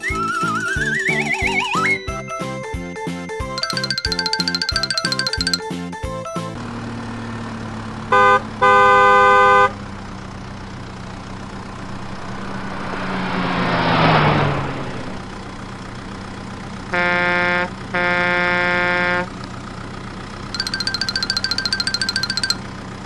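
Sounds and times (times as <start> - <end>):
vehicle horn honking: 8.1 - 9.7, 16.9 - 19.4
low engine hum: 9.8 - 23.0
vehicle passing by: 11.1 - 16.8.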